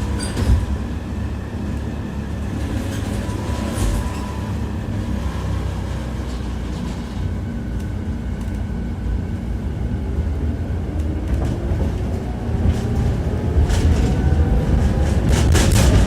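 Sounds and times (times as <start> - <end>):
tram rumble: 0.0 - 16.0
wheels clacking over rail joints: 11.3 - 16.0.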